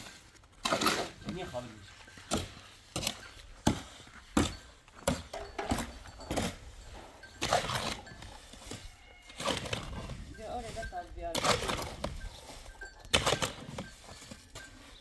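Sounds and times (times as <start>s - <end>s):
objects knocking and clattering: 0.6s - 8.3s.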